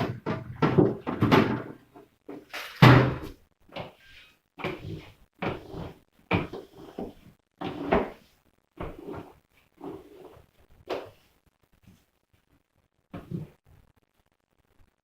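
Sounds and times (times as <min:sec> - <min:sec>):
plastic drawer knocking and clattering: 0:00.0 - 0:01.8.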